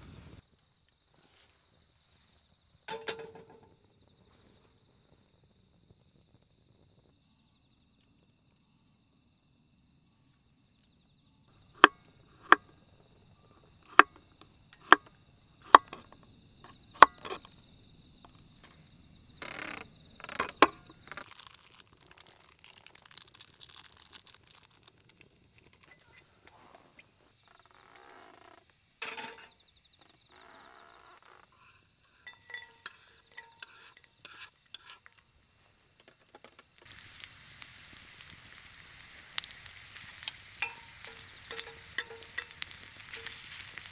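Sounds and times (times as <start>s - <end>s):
insect trill: 0.4s - 26.3s, 27.0s - 43.9s
metal cookware clinking: 2.9s - 3.8s, 29.0s - 29.6s, 31.6s - 35.2s, 39.4s - 43.9s
food sizzling in a pan: 28.8s - 43.9s.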